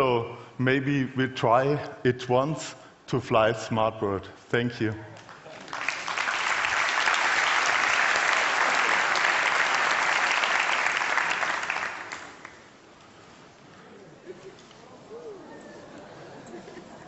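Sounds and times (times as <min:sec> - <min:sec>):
audience applauding: 0:05.1 - 0:12.7.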